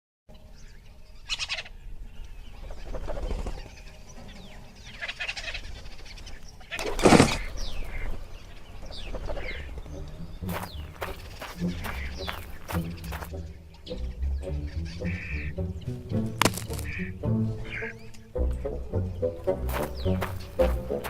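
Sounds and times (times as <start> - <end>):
birds calling: 0.4 - 21.0
loud harsh bird call: 10.5 - 13.3.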